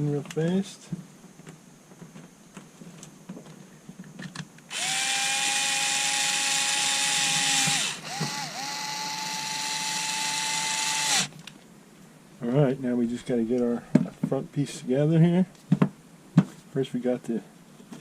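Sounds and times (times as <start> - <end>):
power screwdriver motor whine: 4.7 - 11.3.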